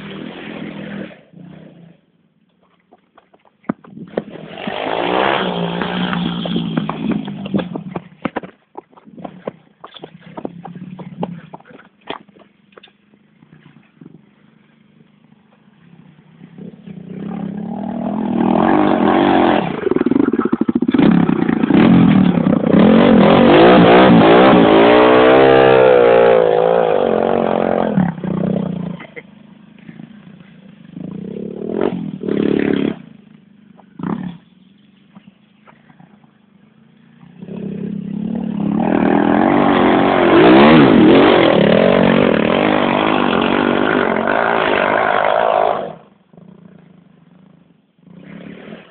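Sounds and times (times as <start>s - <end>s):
small motorbike engine revving: 4.0s - 8.1s, 37.1s - 48.9s.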